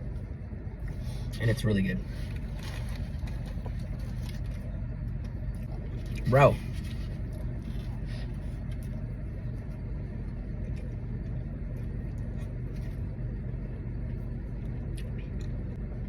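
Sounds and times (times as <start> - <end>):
vehicle engine rumble: 0.0 - 16.0
chewing clicks: 14.6 - 15.6.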